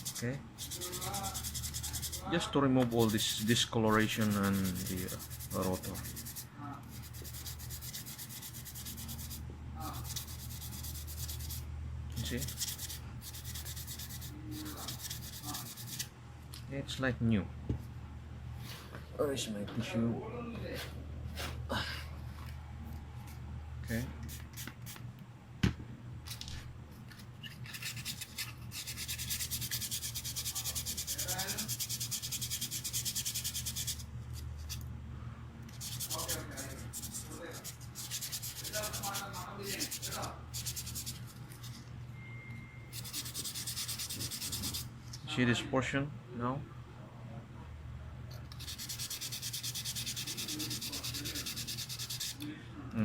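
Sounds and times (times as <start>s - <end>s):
sandpaper rubbing on metal: 0.0s - 2.3s, 2.9s - 11.6s, 12.2s - 16.1s, 27.6s - 34.0s, 35.8s - 41.8s, 42.9s - 44.9s, 48.6s - 52.4s.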